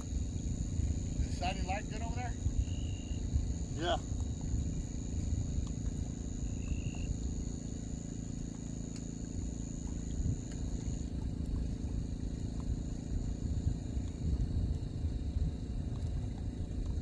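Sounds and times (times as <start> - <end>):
insects trilling: 0.0 - 17.0
steady low rumble: 0.0 - 17.0.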